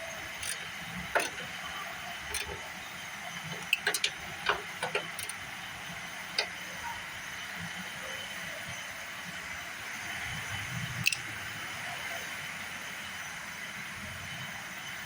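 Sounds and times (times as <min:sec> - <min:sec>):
hand tools clicking on metal: 0:00.4 - 0:02.8, 0:03.4 - 0:05.5.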